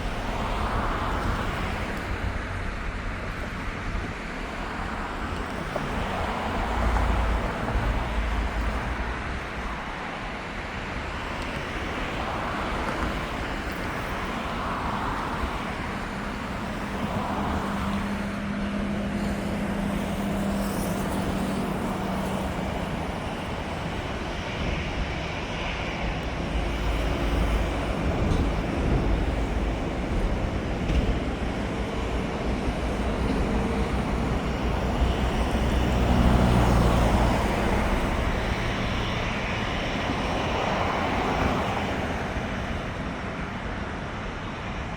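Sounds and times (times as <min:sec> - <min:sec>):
jet engines rumbling: 0:00.0 - 0:44.9
road traffic noise: 0:00.0 - 0:44.9.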